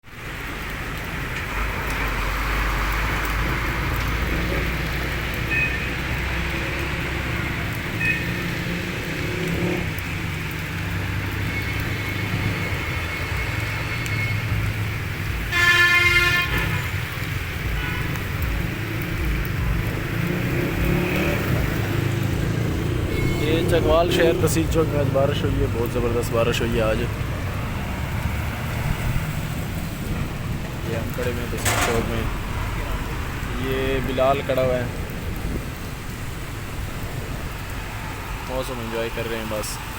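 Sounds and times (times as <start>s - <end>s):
heavy rain: 0.0s - 39.9s
street traffic: 0.0s - 39.9s
vehicle horn blast: 15.5s - 16.9s, 23.1s - 23.7s.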